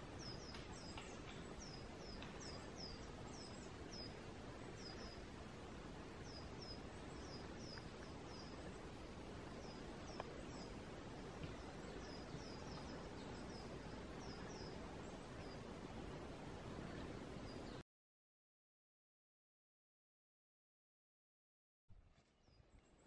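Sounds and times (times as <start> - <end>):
faint outdoor hiss: 0.0 - 17.8, 21.9 - 23.0
small bird calling: 0.1 - 5.3, 6.2 - 15.7.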